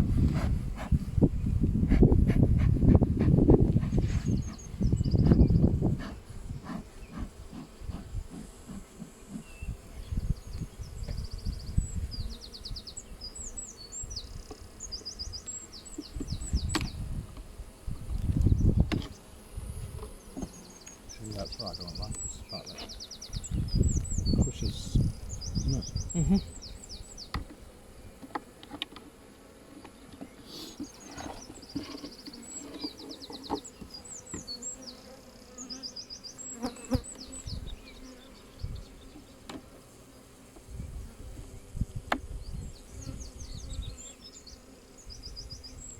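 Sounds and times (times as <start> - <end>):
honeybees buzzing: 0.0 - 45.9
bird singing trills and chirps: 4.2 - 6.2, 9.4 - 17.0, 20.2 - 27.4, 30.2 - 39.4, 42.4 - 45.9.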